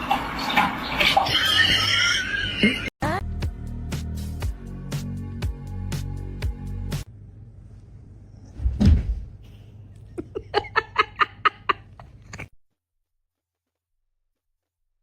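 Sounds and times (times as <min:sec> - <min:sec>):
heavy thud: 0:08.6 - 0:09.4.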